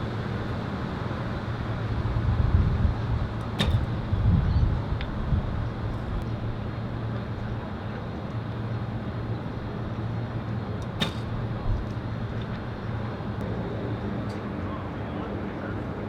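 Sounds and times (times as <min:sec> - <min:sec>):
wind rumble on microphone: 0:00.0 - 0:08.2
bow shot crack: 0:11.0 - 0:11.8.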